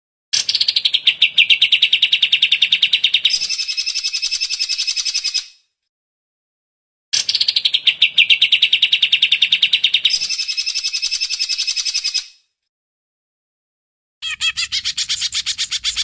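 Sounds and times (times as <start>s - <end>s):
bird singing in rapid trills: 14.2s - 16.0s.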